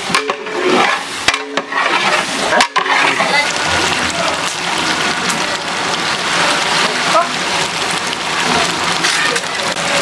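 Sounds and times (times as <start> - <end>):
ladle knocking and scraping pot: 0.0 - 3.3
masala sizzling and bubbling: 0.0 - 10.0.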